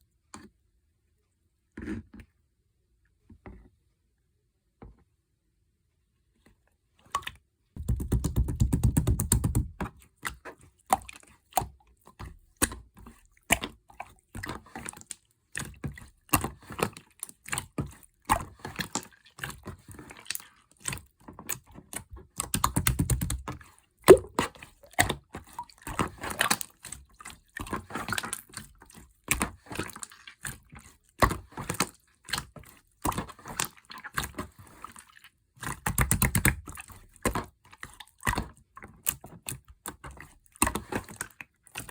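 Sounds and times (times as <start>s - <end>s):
slime squishing and popping: 24.1s - 25.2s.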